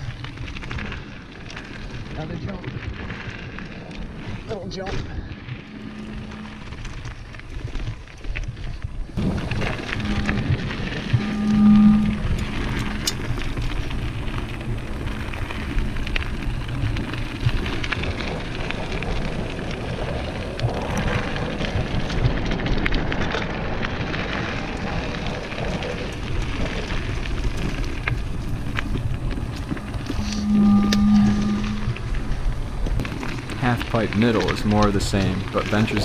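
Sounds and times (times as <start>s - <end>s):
tyres crackling over dirt and stones: 0.0s - 11.2s, 12.3s - 30.4s, 31.9s - 36.0s
bike rattling and ticking: 12.2s - 30.3s.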